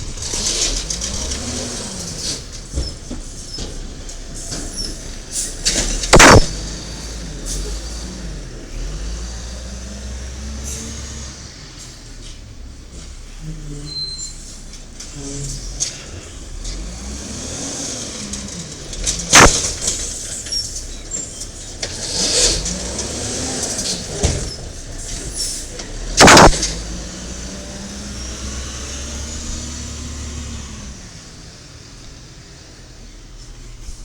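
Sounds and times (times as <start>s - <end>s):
garbage truck diesel engine revving: 0.0s - 13.8s, 15.0s - 33.4s
loud bangs: 6.0s - 7.0s, 19.2s - 20.0s, 26.2s - 26.8s.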